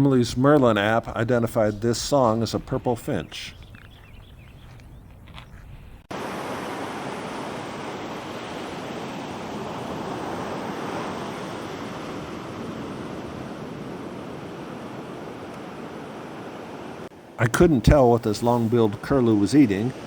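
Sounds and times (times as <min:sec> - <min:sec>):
ocean surf rushing: 0:06.1 - 0:20.0.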